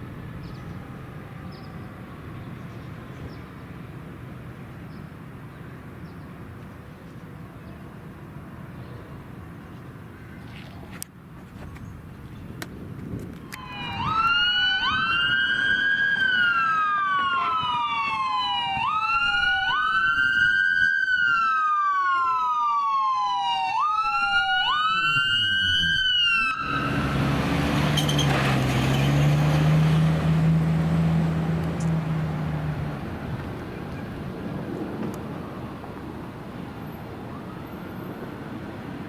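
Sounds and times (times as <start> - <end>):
emergency siren wailing: 13.5 - 34.4, 35.2 - 39.0.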